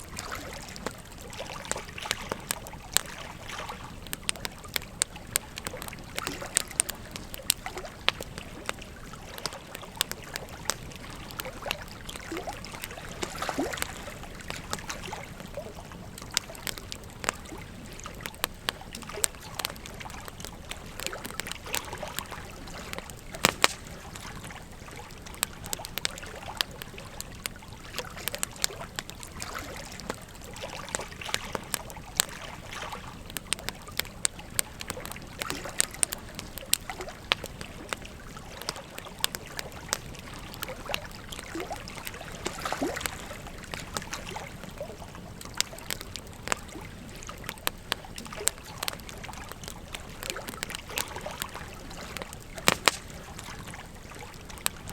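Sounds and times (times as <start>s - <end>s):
flowing river: 0.0s - 54.9s
wood fire crackling and popping: 0.0s - 54.9s.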